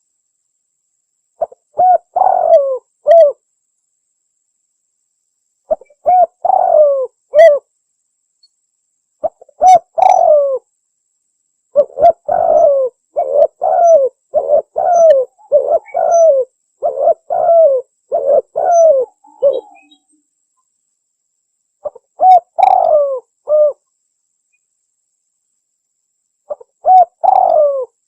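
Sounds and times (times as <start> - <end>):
dove cooing: 1.4 - 3.4, 5.7 - 7.7, 9.2 - 10.6, 11.8 - 20.0, 21.8 - 23.8, 26.5 - 28.0.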